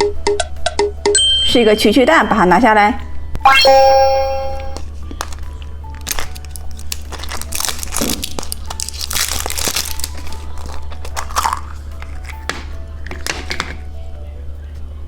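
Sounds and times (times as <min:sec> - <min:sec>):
faint background music: 0:00.0 - 0:15.0
plastic packaging crinkling: 0:05.2 - 0:12.4.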